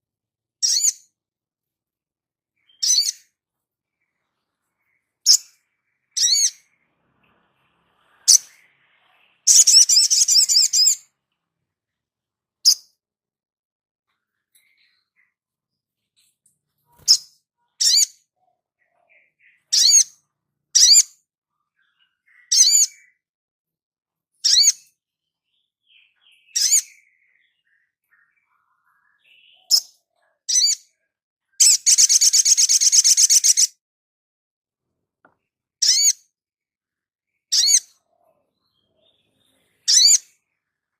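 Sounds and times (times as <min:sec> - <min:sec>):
songbird high calls and trill: 0:00.6 - 0:01.2, 0:02.5 - 0:11.2, 0:14.1 - 0:23.3, 0:24.3 - 0:33.8, 0:35.8 - 0:40.9.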